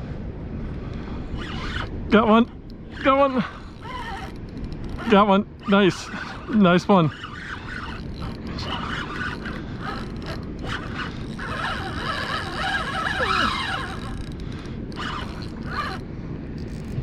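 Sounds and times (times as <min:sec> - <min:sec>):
wind and water rumble: 0:00.0 - 0:17.0
fishing reel clicking: 0:00.9 - 0:16.0, 0:16.6 - 0:17.0.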